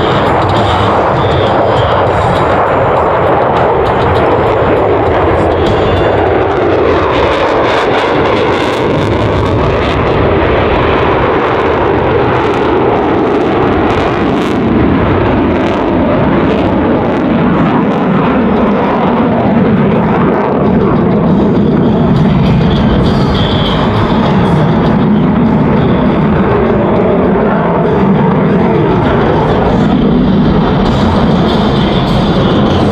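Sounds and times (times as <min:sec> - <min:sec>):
loud jet engine noise: 0:00.0 - 0:32.9.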